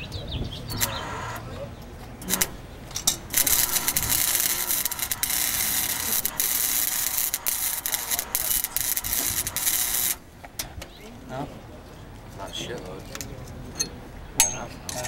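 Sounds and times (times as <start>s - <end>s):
welding hiss and crackle: 0.7s - 11.0s.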